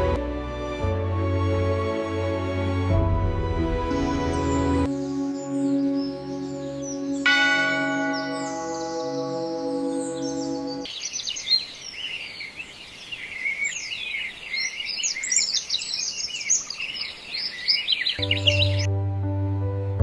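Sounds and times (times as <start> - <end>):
music: 0.0 - 10.9, 18.2 - 20.0
many birds chirping: 3.9 - 18.9
ringing bell-like tone: 7.3 - 10.9.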